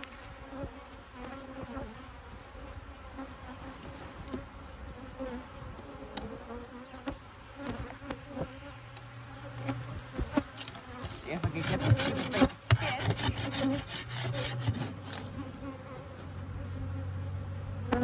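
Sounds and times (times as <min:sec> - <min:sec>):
bees buzzing: 0:00.0 - 0:18.0
wooden hive parts knocking: 0:11.0 - 0:15.3.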